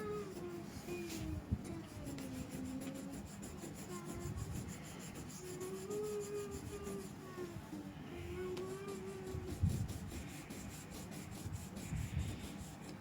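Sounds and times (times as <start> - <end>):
crayon scratching on paper: 0.0 - 7.2, 8.5 - 13.0.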